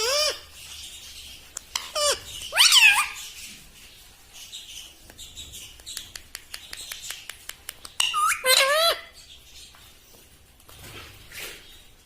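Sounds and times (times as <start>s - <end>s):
parrot calling: 0.0s - 0.6s, 1.7s - 3.3s, 8.0s - 9.2s.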